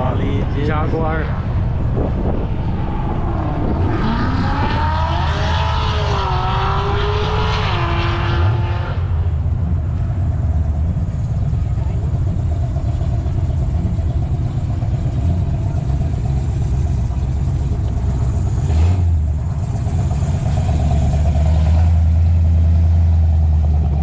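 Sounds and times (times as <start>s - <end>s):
car engine and road rumble: 0.0s - 24.0s
rushing swell: 0.8s - 9.2s.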